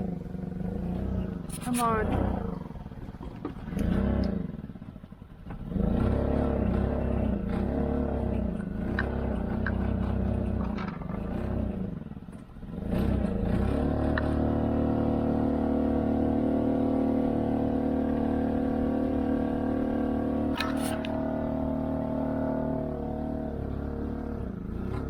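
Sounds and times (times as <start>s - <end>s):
outboard motor running unevenly: 0.0s - 5.2s, 14.2s - 25.0s.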